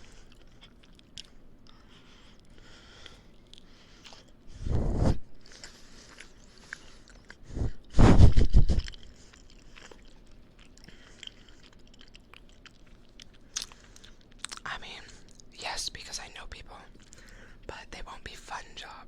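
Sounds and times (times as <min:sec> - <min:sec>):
wet chewing and biting: 0:00.0 - 0:04.4, 0:05.4 - 0:07.9, 0:08.5 - 0:15.5.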